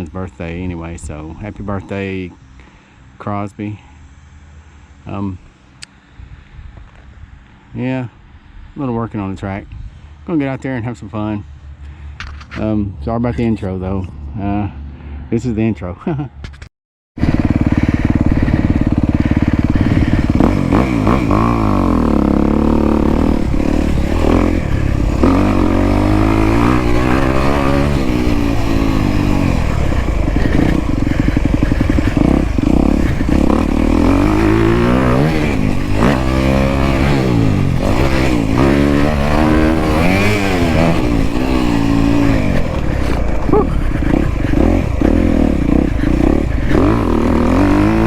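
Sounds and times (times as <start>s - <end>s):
dirt bike engine revving: 17.2s - 48.0s.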